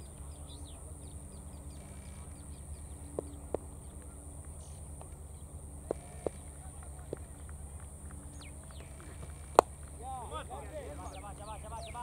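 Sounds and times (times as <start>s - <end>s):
outdoor background noise: 0.0s - 12.0s
small birds chirping: 0.0s - 12.0s.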